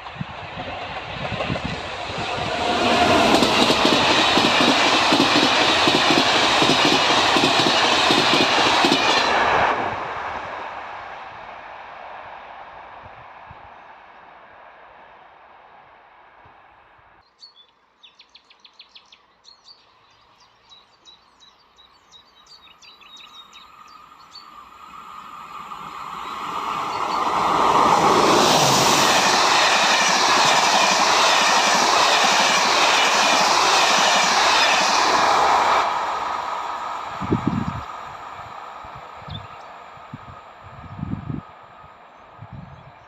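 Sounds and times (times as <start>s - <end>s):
train passing: 0.0s - 17.2s, 21.9s - 43.0s.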